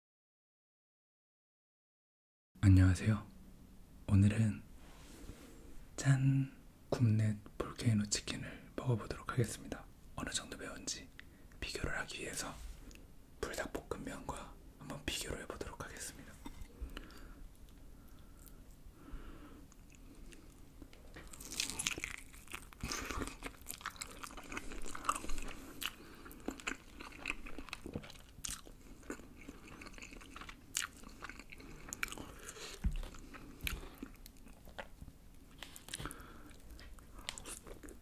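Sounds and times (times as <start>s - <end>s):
chewing crispy chicken: 19.7s - 38.0s.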